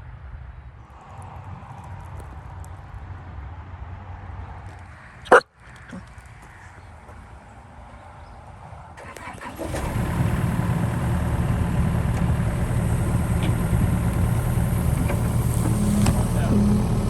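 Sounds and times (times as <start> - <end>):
diesel engine starting and running: 9.0 - 17.0.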